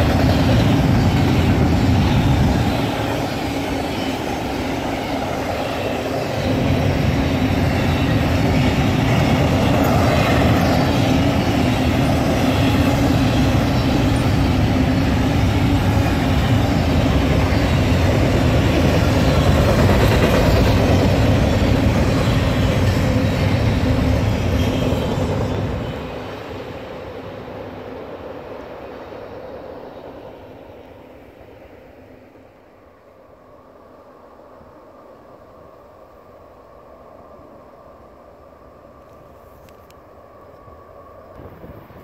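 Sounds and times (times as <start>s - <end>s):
train rolling on rails: 0.0s - 42.0s.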